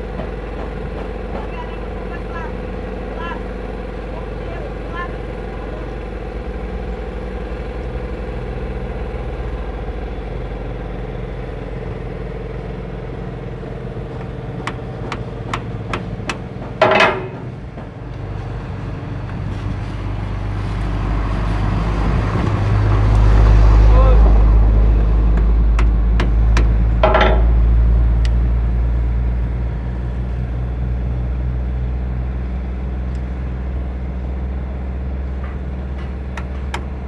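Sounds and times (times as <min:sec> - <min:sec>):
engine droning: 0:00.0 - 0:37.0
sharp metallic clicks: 0:14.1 - 0:17.5
ringing metal clang: 0:14.6 - 0:17.5, 0:26.6 - 0:27.7.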